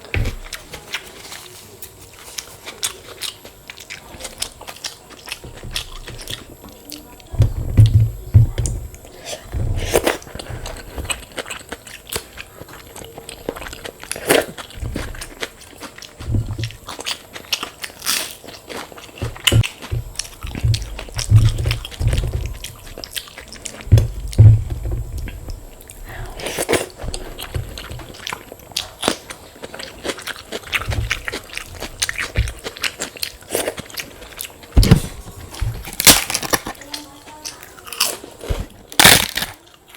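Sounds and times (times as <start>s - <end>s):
chewing and biting: 0.0s - 39.9s
deep thuds from jaw: 7.3s - 10.0s, 19.2s - 23.2s, 23.8s - 26.4s
crisp fried food crunching: 9.0s - 34.8s, 35.8s - 39.9s.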